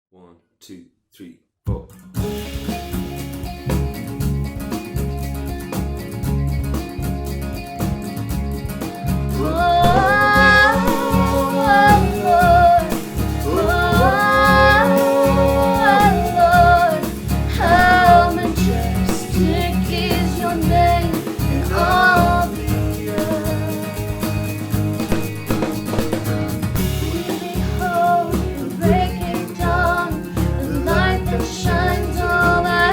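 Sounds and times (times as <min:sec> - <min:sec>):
bass: 0:01.7 - 0:32.9
acoustic guitar: 0:01.9 - 0:32.9
gliding melody line: 0:09.6 - 0:21.0.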